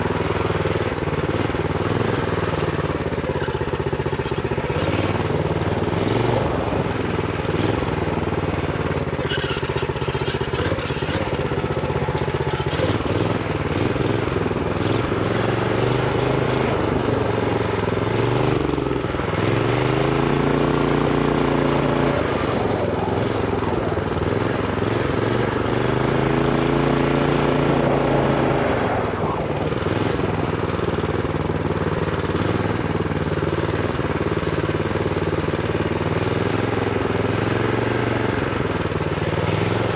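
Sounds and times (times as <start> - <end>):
minibike engine revving: 0.0 - 39.9.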